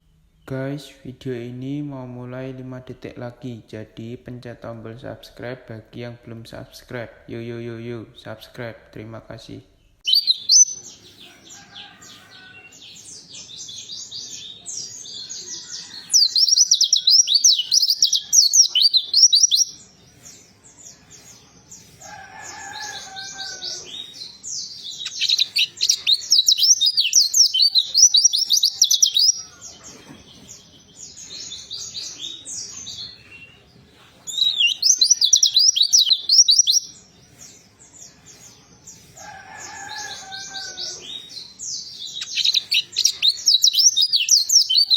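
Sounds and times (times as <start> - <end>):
small bird twittering song: 9.5 - 44.9.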